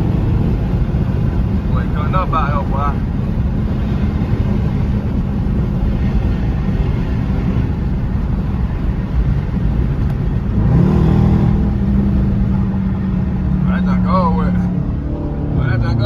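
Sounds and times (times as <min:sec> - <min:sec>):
car engine and exhaust droning: 0:00.0 - 0:16.0.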